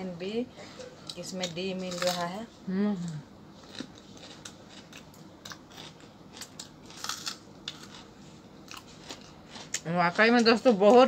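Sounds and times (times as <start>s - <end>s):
people chewing crunchy food: 3.0s - 11.0s.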